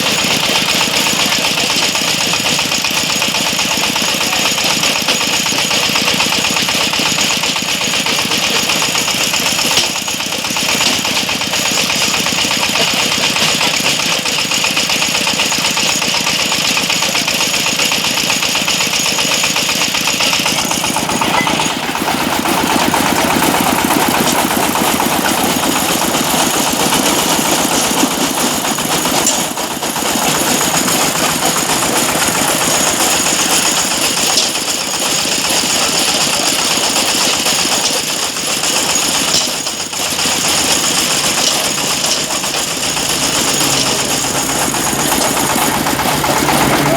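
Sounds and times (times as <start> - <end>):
machine engine running: 0.0 - 46.9.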